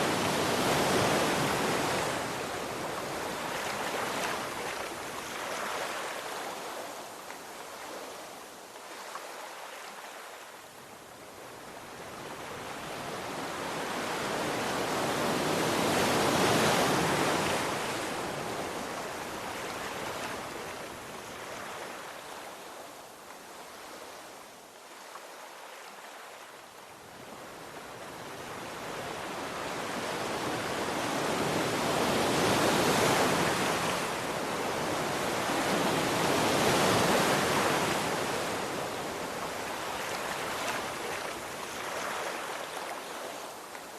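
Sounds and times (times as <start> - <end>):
sea waves breaking ashore: 28.1 - 43.9.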